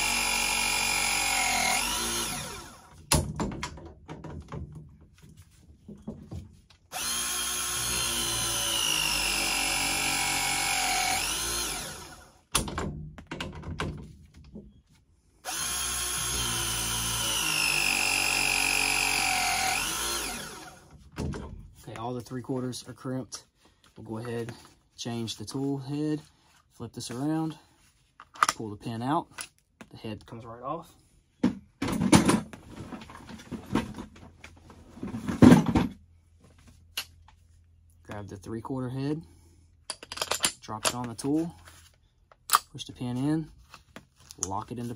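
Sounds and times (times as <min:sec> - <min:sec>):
crimping tool motor whine: 0:00.0 - 0:02.9, 0:06.9 - 0:12.4, 0:15.4 - 0:20.9
tool knocks and clunks: 0:03.0 - 0:06.6, 0:12.5 - 0:14.8, 0:21.0 - 0:21.8, 0:31.4 - 0:34.4, 0:35.0 - 0:36.0.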